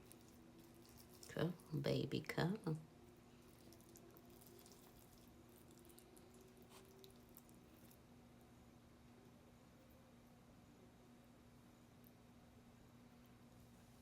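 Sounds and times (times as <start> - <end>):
mouth chewing food: 0.0 - 1.7, 3.1 - 8.0
steady low hum: 0.0 - 14.0.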